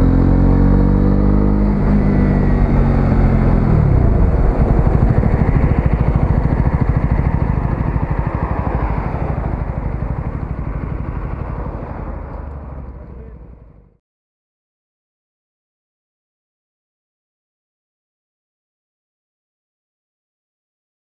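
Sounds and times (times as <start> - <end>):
motorcycle engine throbbing: 0.0 - 14.0.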